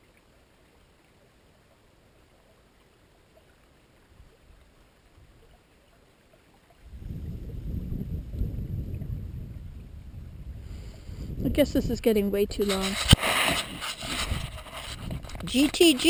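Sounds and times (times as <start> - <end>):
wind buffeting microphone: 6.8 - 16.0.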